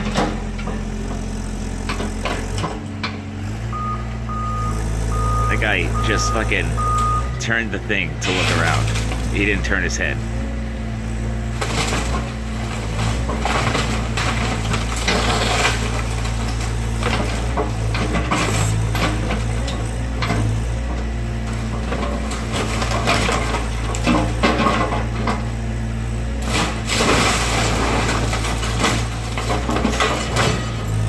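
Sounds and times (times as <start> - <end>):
diesel engine running: 0.0 - 31.0
wood cracking and splintering: 7.4 - 10.2, 11.5 - 19.8, 21.5 - 25.5, 26.3 - 31.0.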